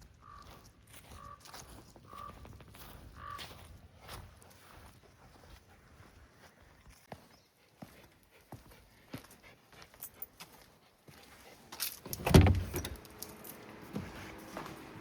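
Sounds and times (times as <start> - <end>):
keys jangling: 11.7 - 13.6
loud clatter and thump: 12.1 - 13.0.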